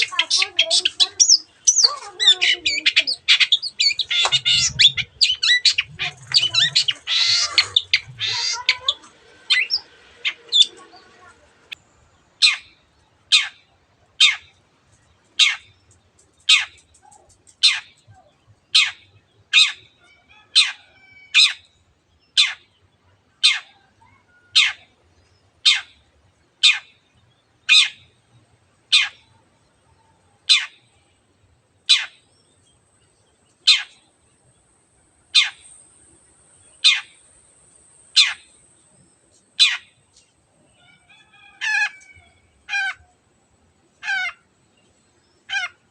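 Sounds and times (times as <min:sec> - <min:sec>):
shrike giving harsh calls: 0:00.0 - 0:11.7.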